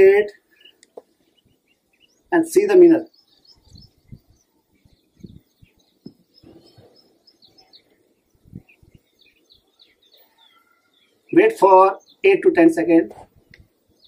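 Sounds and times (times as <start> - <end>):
faint birds chirping: 0.0 - 14.0
soft low thumps: 3.6 - 7.1.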